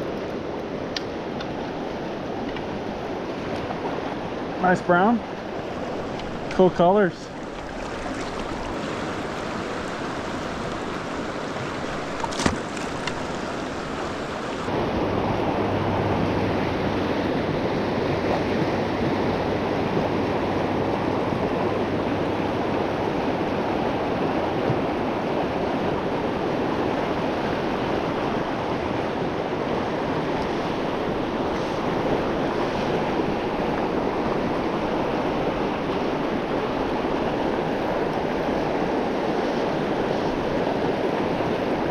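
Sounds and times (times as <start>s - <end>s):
flowing river water: 0.0s - 41.9s.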